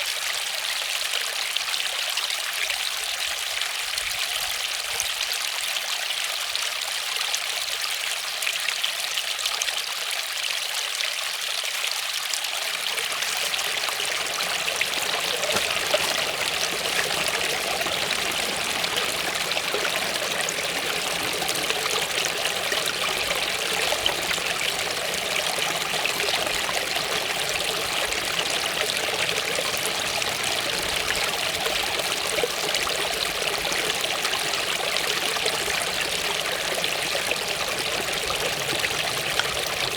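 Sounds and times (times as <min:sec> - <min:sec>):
waterfall rushing: 0:12.9 - 0:39.9.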